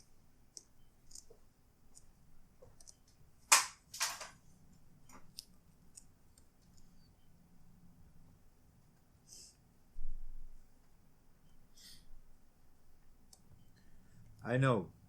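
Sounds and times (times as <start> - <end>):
small clicks and taps of parts: 0.0 - 4.4, 5.1 - 6.9.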